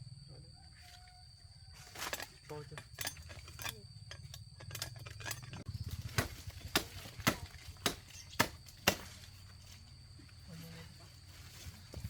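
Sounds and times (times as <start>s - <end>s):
blade chopping sugarcane: 5.9s - 9.4s.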